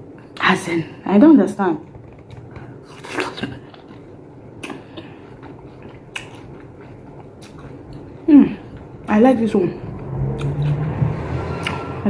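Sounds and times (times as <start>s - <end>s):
person biting and chewing fruit: 2.4s - 9.0s, 10.3s - 10.9s, 11.6s - 11.9s
wet mouth clicks: 5.7s - 8.0s, 10.4s - 10.8s.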